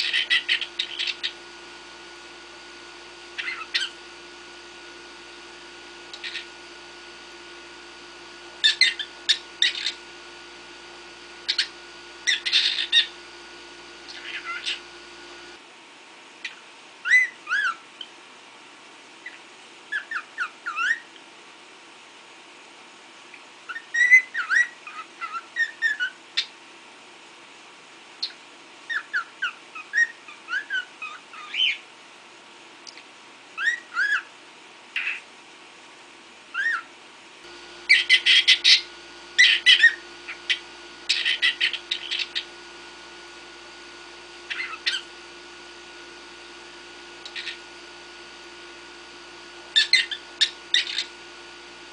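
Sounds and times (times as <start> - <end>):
cockatiel chirping: 0.0 - 1.4, 3.3 - 4.0, 6.1 - 6.6, 8.6 - 10.0, 11.4 - 13.2, 14.1 - 14.9, 19.3 - 21.0, 28.2 - 31.8, 36.6 - 36.9, 37.9 - 42.6, 44.5 - 45.1, 47.2 - 47.6, 49.8 - 51.1.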